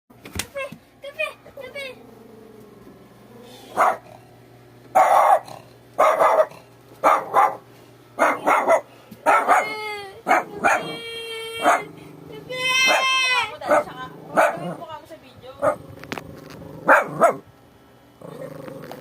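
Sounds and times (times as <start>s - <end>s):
dog barking: 3.7s - 4.1s, 5.0s - 11.0s, 11.6s - 11.9s, 12.8s - 14.8s, 15.6s - 15.8s, 16.8s - 17.4s.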